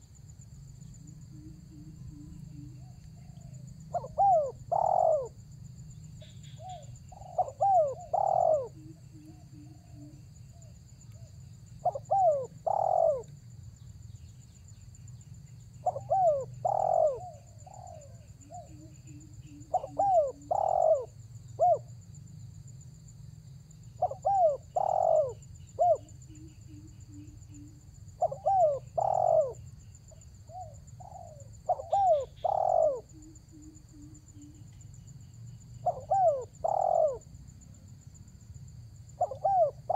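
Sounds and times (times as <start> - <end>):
dove cooing: 1.2 - 5.4, 6.2 - 13.3, 15.8 - 21.9, 24.0 - 34.7, 35.8 - 37.3, 39.2 - 39.9.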